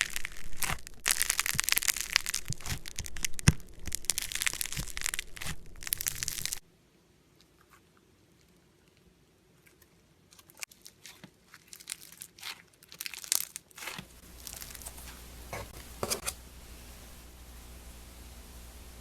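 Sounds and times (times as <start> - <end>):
slime squeezed by hand crackling: 0.0 - 6.6, 10.4 - 15.1.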